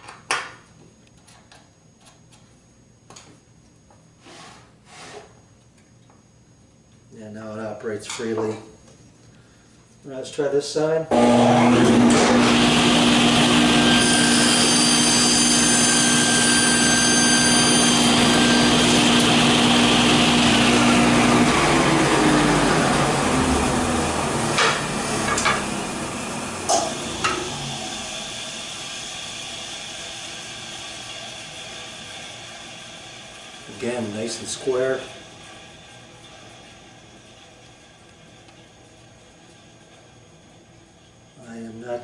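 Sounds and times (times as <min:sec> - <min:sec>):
table saw cutting wood: 0:11.1 - 0:36.5.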